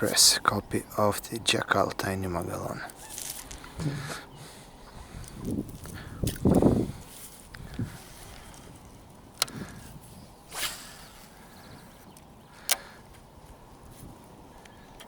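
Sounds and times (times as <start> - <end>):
lure cast swish: 10.4 - 11.4
fishing tackle clicks: 12.0 - 12.9.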